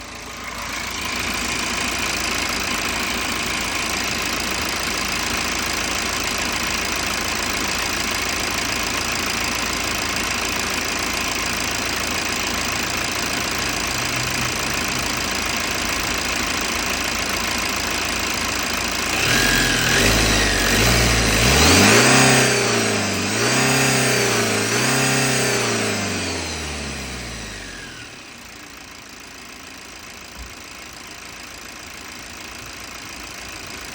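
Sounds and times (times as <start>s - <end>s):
diesel engine idling and revving: 0.0s - 33.9s.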